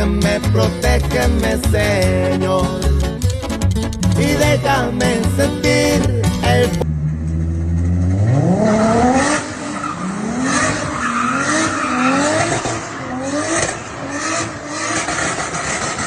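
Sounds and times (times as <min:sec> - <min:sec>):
car engine revving: 0:03.2 - 0:16.0.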